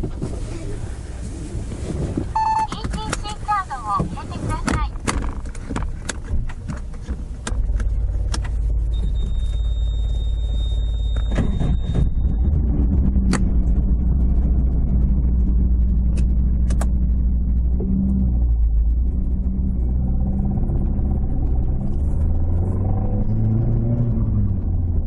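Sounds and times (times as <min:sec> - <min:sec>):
car engine droning: 0:00.0 - 0:25.0
thin high tone: 0:08.9 - 0:12.4.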